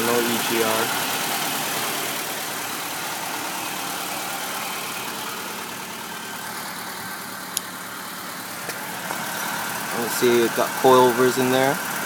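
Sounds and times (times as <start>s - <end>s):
person talking: 0.0s - 0.9s, 9.9s - 11.8s
car engine idling: 0.0s - 12.0s.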